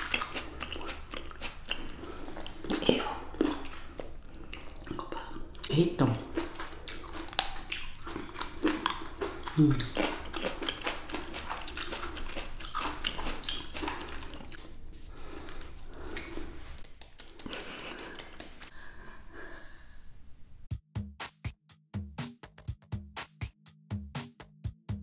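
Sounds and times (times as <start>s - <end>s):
chewing grapes: 0.0s - 18.7s.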